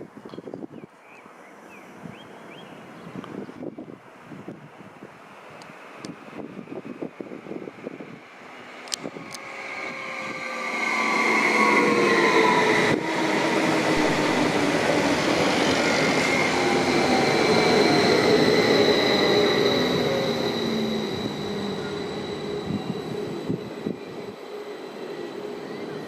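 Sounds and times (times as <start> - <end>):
train passing close by: 5.3 - 26.0
whining tones falling in pitch: 9.0 - 26.0.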